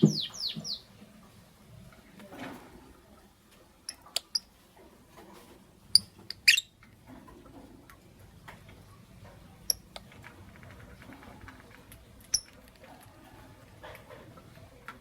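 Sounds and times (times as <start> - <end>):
lovebirds chirping: 0.0 - 1.0, 5.9 - 6.8.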